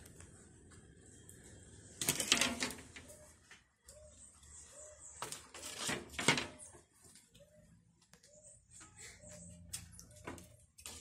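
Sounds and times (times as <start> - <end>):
bird cooing: 3.0 - 5.7, 6.5 - 10.5
rustling scraping noise: 5.2 - 6.8.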